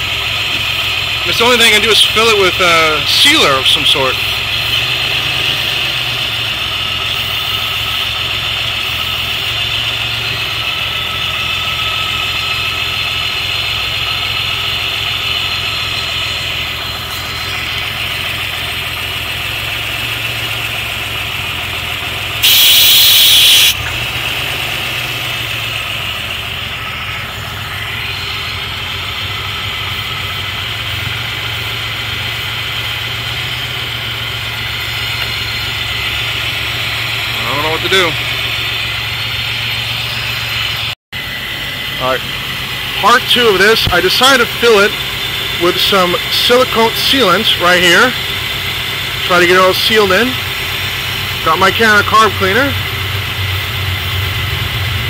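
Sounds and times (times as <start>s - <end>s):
car engine idling roughly: 0.0s - 55.0s.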